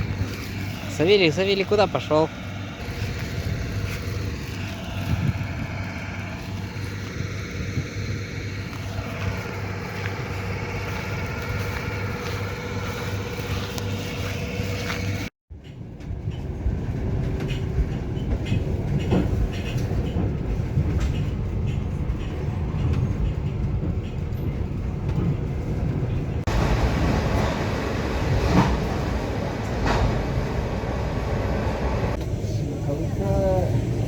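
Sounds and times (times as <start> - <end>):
train carriage rumbling on track: 0.0 - 34.0.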